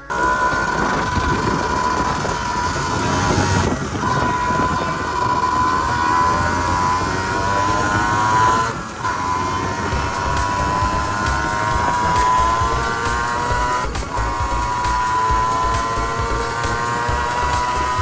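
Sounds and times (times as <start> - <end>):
low wind rumble: 0.0 - 18.0
two-stroke motorcycle engine revving: 0.0 - 18.0.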